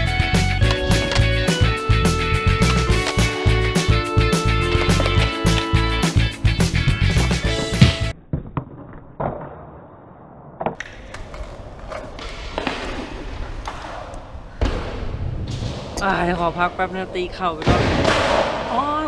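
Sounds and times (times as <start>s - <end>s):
guitar music: 0.0s - 8.1s
skateboard wheels rolling on pavement: 10.8s - 16.0s.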